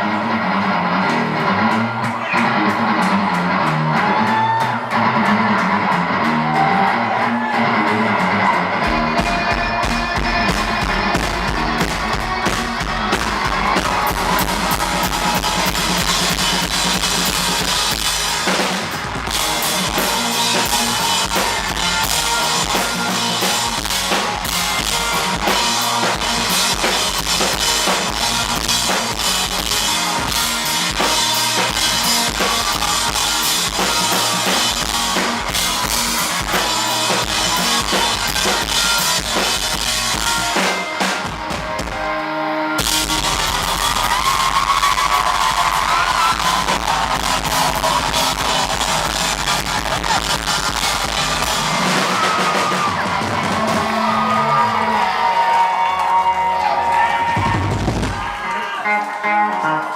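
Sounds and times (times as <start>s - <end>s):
live rock band playing: 0.0s - 59.9s
bass drum and snare: 8.9s - 42.0s, 42.8s - 54.0s.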